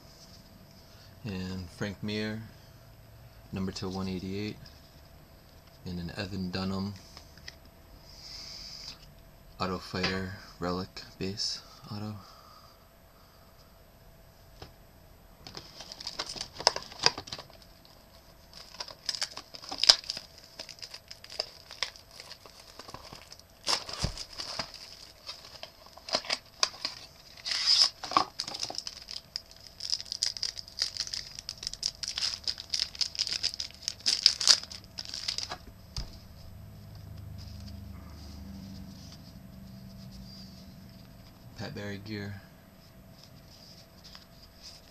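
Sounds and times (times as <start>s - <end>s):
foil wrapper tearing and crinkling: 15.6s - 35.6s.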